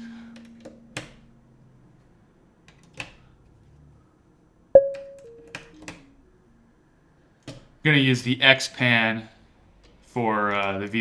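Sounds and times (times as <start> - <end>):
plucked synthesizer note: 4.8 - 5.6.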